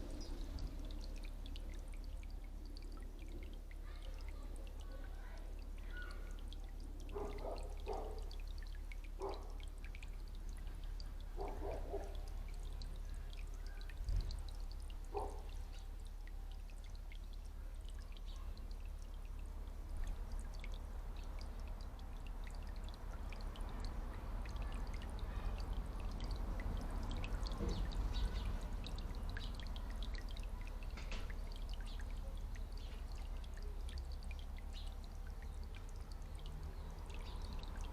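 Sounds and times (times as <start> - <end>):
water trickling and splashing: 0.0 - 37.9.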